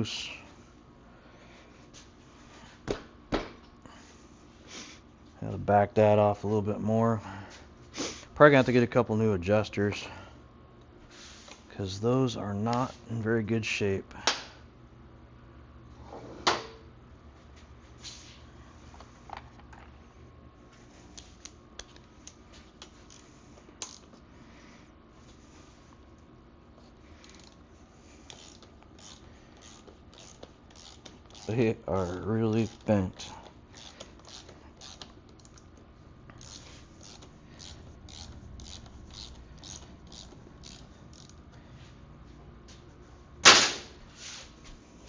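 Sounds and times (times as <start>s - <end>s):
wrench ratcheting: 27.2s - 27.6s, 28.2s - 35.7s, 36.3s - 41.4s.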